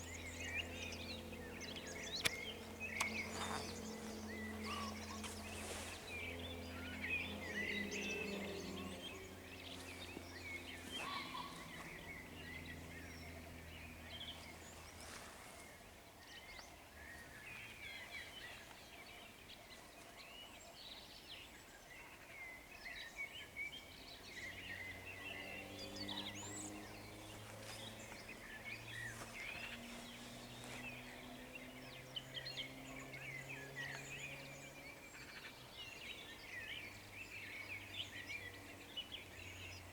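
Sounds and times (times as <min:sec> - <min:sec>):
low droning hum: 0:00.0 - 0:15.8
songbirds chirping and trilling: 0:00.0 - 0:39.9.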